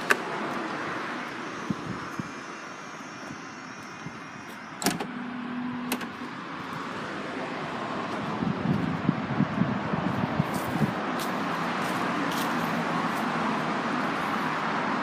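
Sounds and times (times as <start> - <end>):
tailgate motor whine: 4.0 - 6.3
tailgate latch click: 4.8 - 5.1, 5.9 - 6.2.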